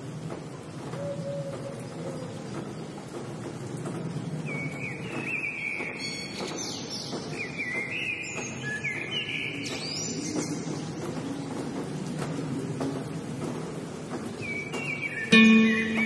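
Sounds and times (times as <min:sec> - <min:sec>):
birds chirping and singing: 0:14.4 - 0:16.0.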